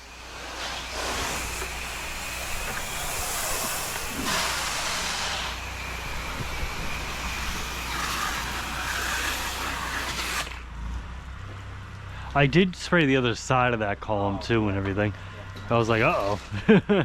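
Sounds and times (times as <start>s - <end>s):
spray jet hissing on house: 0.0s - 10.6s
engine humming: 0.0s - 17.0s.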